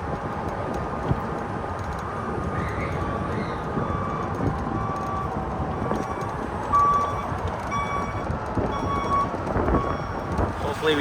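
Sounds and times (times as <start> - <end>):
wind and tyre noise: 0.0 - 11.0.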